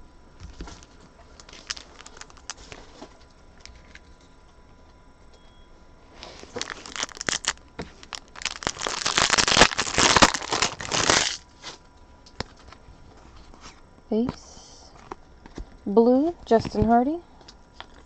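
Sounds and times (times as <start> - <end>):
wrapper tearing and crinkling: 0.8 - 3.0, 6.2 - 11.5.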